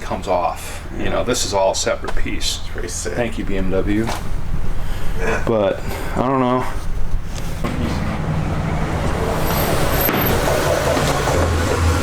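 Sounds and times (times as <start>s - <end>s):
road noise: 0.0s - 12.0s
car engine: 7.3s - 12.0s.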